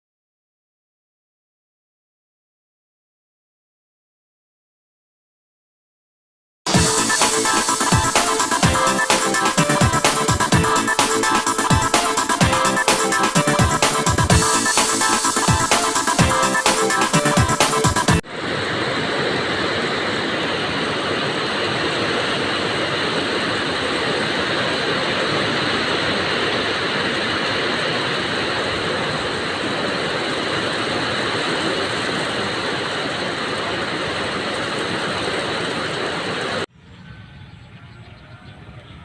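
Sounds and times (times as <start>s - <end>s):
heavy rain in strong wind: 18.2s - 36.7s.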